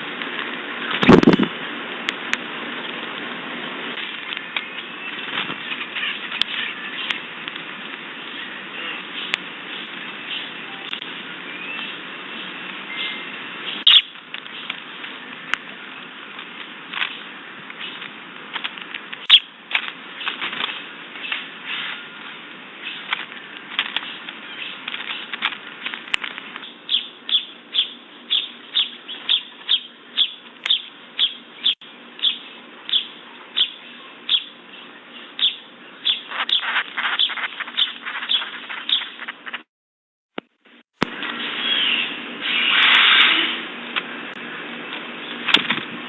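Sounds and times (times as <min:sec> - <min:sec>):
bird chirps: 0:08.3 - 0:14.7, 0:26.6 - 0:39.3, 0:41.4 - 0:43.2.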